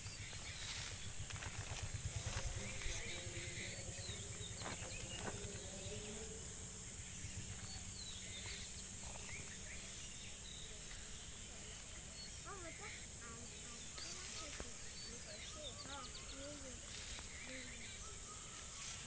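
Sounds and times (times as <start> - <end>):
constant low rumble: 0.0 - 19.0
faint bird chirps: 0.0 - 19.0
high-pitched insect drone: 0.0 - 19.0.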